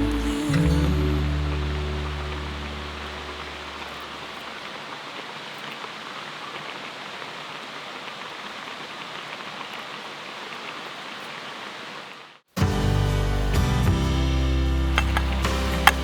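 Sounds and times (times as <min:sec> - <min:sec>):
background music: 0:00.0 - 0:03.4, 0:12.6 - 0:16.0
flowing river water: 0:00.0 - 0:12.4, 0:15.0 - 0:16.0.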